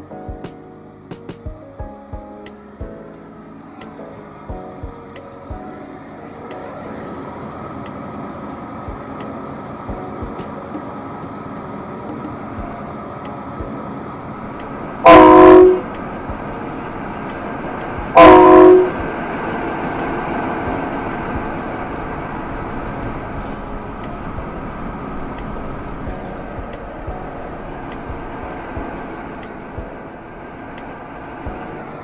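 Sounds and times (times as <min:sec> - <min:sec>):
train running noise: 0:02.8 - 0:32.0
locomotive horn blasts: 0:15.0 - 0:15.9, 0:18.1 - 0:19.0.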